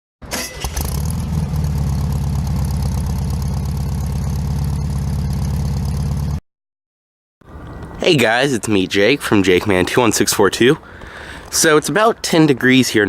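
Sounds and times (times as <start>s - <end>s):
car engine idling: 0.8s - 6.4s.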